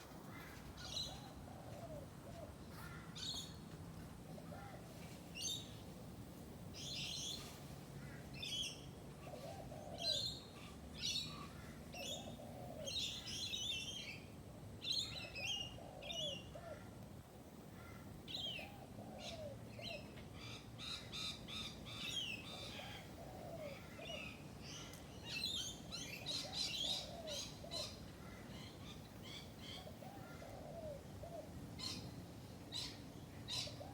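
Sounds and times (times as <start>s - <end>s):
birds chirping and trilling: 0.0s - 2.0s, 18.3s - 33.9s.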